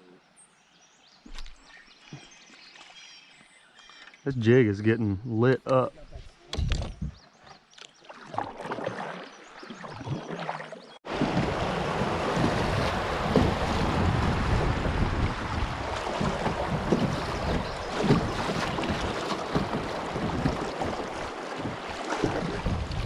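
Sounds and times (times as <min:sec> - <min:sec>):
moving water: 0:05.7 - 0:23.0
handling knocks and clicks on kayak: 0:06.5 - 0:08.0, 0:15.9 - 0:23.0
wind buffeting microphone: 0:11.1 - 0:23.0.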